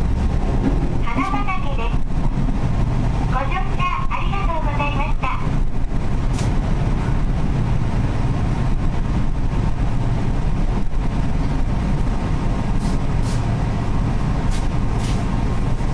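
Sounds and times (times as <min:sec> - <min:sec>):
electric train low rumble: 0:00.0 - 0:15.9
short hisses: 0:12.8 - 0:13.5.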